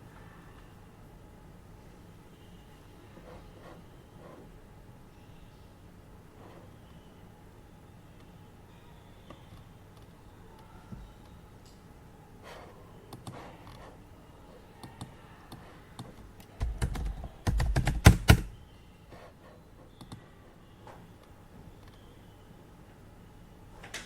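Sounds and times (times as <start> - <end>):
faint air purifier hum: 0.0 - 24.0
desk thumps: 16.6 - 18.5
typing on keyboard: 16.6 - 18.5.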